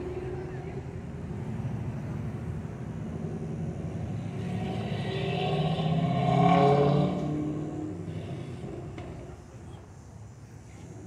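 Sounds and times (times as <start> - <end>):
car driving past: 3.0 - 9.4.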